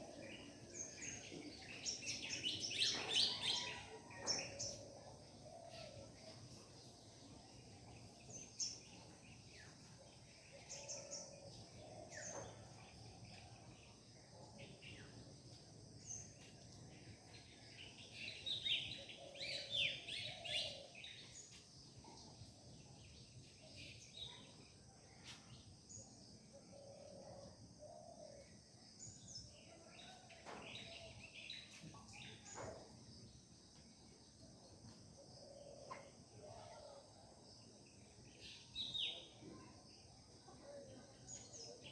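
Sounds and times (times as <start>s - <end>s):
birds chirping and singing: 0.0s - 14.0s, 17.6s - 21.6s.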